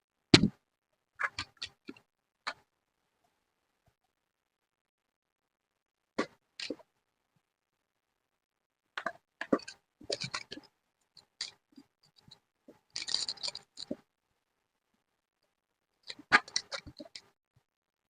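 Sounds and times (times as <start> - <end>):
paper clicks and rustles: 12.2 - 14.0.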